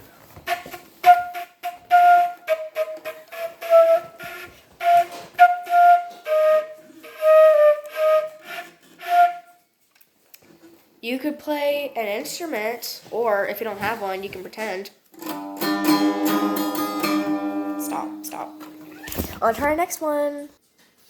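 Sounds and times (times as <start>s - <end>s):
child playing flute: 0.4s - 9.7s.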